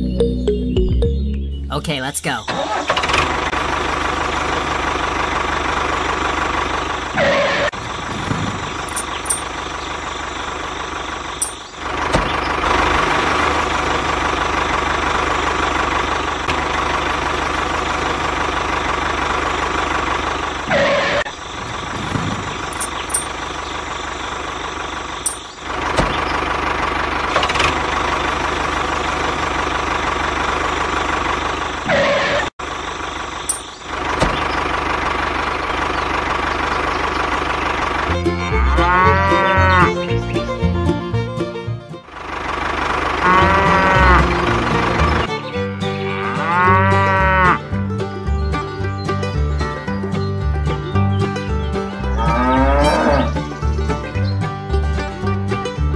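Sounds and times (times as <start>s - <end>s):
tractor engine knocking idle: 2.6s - 32.0s, 32.6s - 46.0s, 47.3s - 52.2s, 53.3s - 55.9s.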